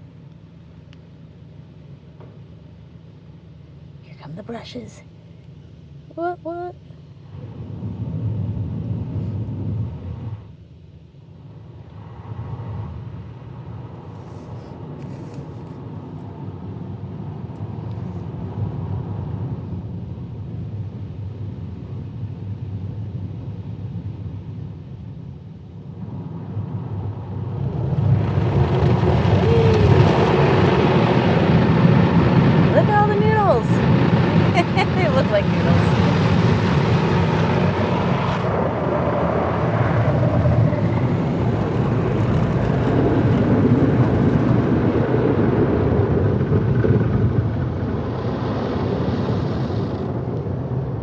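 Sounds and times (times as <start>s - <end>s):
car wash brushes rumbling: 26.0s - 50.2s.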